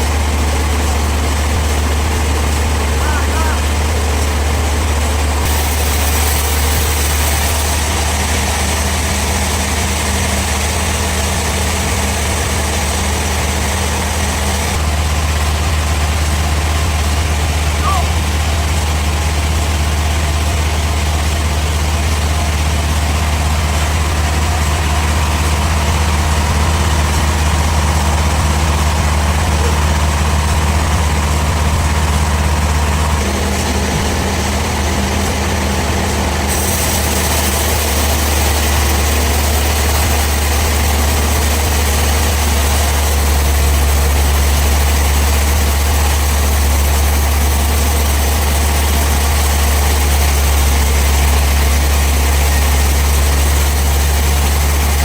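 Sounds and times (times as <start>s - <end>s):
sawmill machinery humming: 0.0s - 55.0s.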